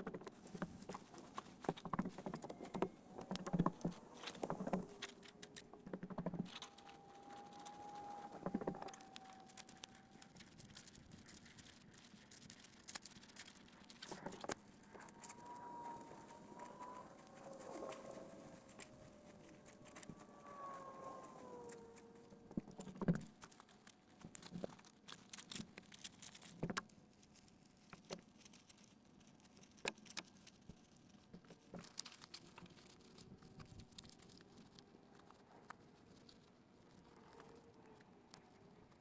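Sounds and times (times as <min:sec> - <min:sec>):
gliding tones sliding downward: 0:02.1 - 0:10.6, 0:14.5 - 0:22.8.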